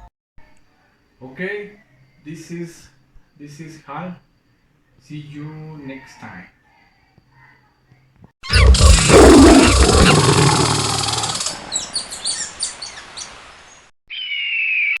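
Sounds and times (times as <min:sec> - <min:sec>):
animal roar: 0:08.5 - 0:11.6.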